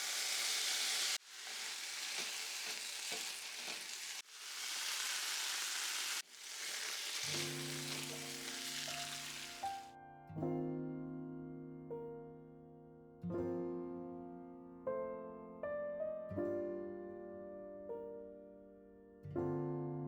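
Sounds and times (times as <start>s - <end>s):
food sizzling in a pan: 0.0s - 9.9s
soft piano music: 7.3s - 20.0s.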